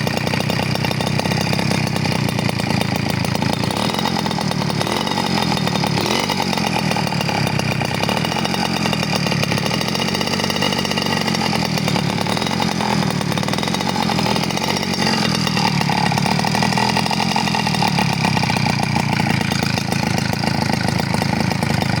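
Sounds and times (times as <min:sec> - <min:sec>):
engine running without baffle: 0:00.0 - 0:22.0.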